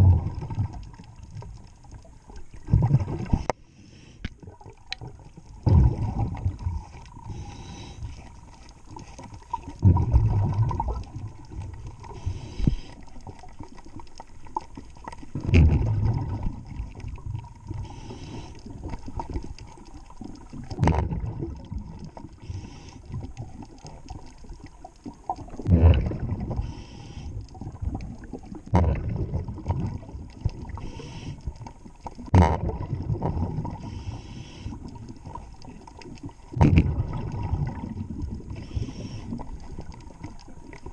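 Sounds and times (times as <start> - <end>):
regulator exhaling bubbles underwater: 0.0 - 3.5, 4.4 - 40.9
quiet underwater water noise: 0.0 - 40.9.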